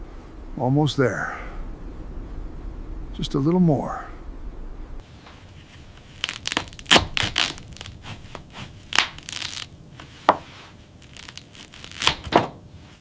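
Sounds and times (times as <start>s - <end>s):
crunching: 5.0s - 13.0s.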